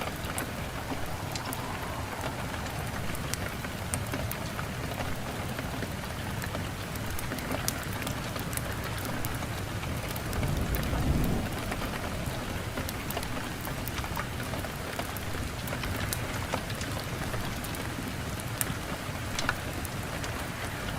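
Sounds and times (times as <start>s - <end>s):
wood fire crackling: 0.0s - 20.7s
steady rain: 0.0s - 20.9s
low rumble: 0.2s - 4.6s.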